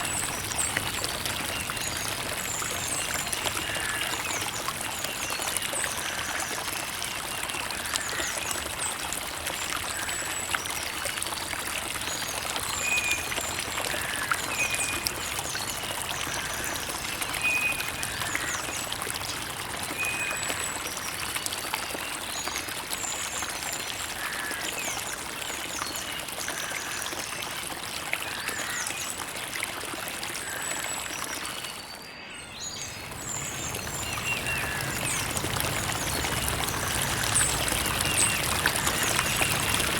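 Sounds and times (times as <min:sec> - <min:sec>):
creek water trickling: 0:00.0 - 0:39.9
small birds chirping: 0:32.4 - 0:39.9.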